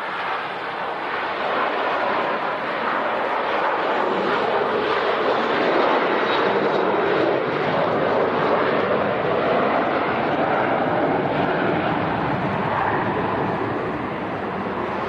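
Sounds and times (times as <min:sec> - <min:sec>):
jet airliner engines: 0:00.0 - 0:15.0.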